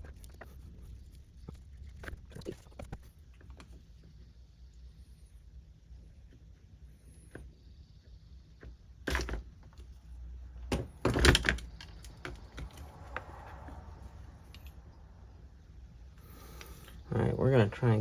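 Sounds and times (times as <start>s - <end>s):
parts clunking when set down: 9.0s - 9.9s, 10.6s - 13.3s.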